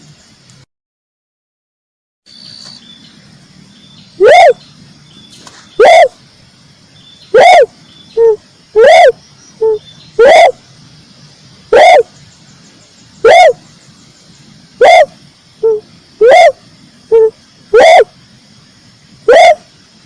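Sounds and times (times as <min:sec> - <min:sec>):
dove cooing: 0:04.2 - 0:04.6, 0:05.8 - 0:06.2, 0:07.3 - 0:10.6, 0:11.7 - 0:12.2, 0:13.2 - 0:13.6, 0:14.8 - 0:18.2, 0:19.2 - 0:19.7.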